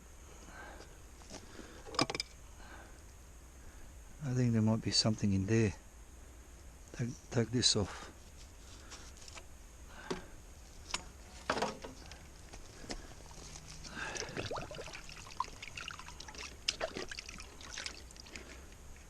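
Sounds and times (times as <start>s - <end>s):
water sloshing and trickling: 13.3s - 19.0s.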